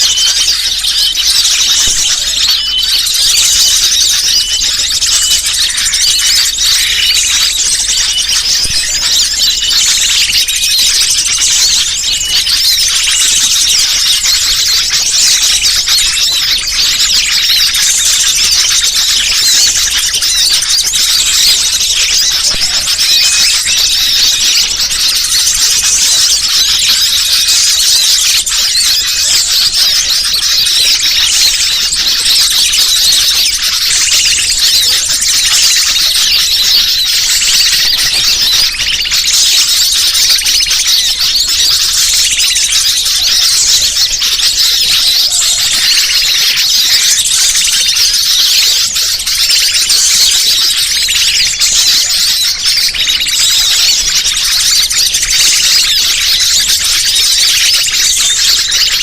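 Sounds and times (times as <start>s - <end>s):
small birds chirping and squeaking: 0.0s - 59.0s.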